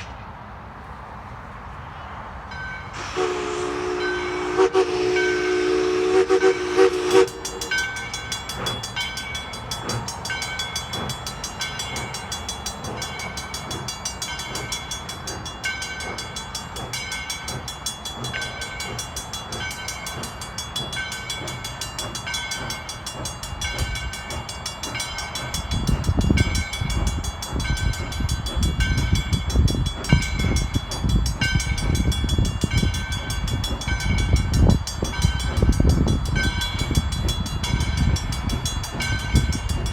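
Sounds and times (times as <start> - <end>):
train wheels rumbling and clattering: 2.3 - 39.9
train whistle chord: 3.0 - 7.8.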